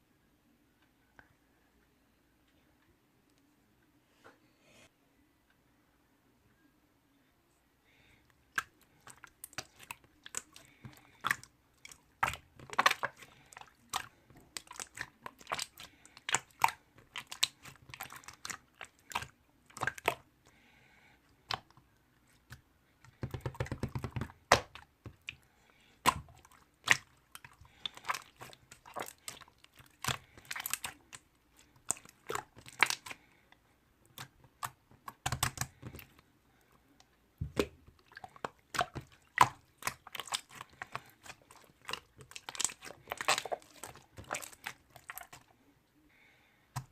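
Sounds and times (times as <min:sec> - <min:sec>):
chewing and crunching snack: 0:08.6 - 0:20.6, 0:23.1 - 0:45.5.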